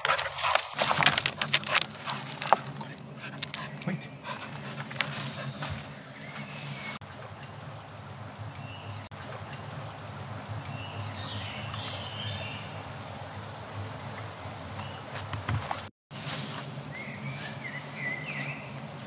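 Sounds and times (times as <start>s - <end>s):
knocks and scuffs: 0.0s - 6.9s, 14.7s - 16.8s
birds chirping: 0.0s - 19.0s.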